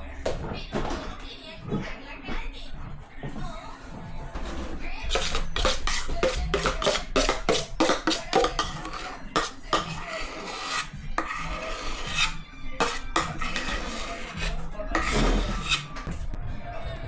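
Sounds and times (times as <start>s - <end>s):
rasping strokes on a grater: 5.1s - 15.9s.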